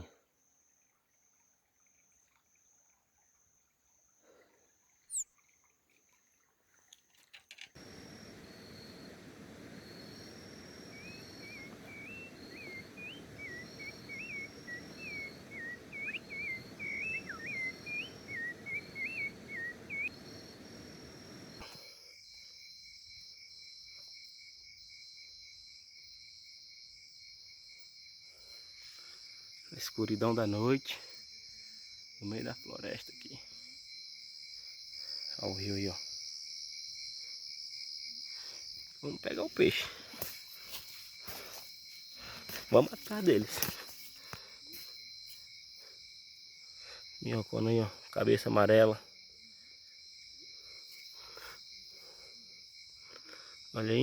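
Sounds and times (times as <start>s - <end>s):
crickets and insects trilling: 0.0s - 6.9s, 7.5s - 54.0s
songbird chirping: 4.8s - 21.8s, 38.3s - 44.9s.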